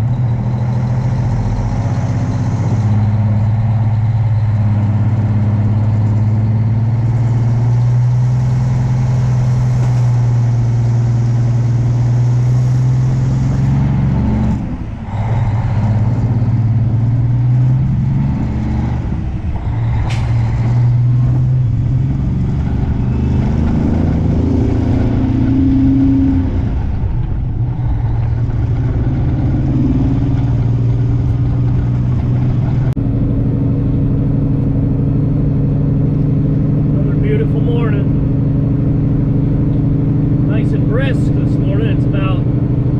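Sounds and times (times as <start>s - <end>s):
diesel truck engine running: 0.0s - 42.9s.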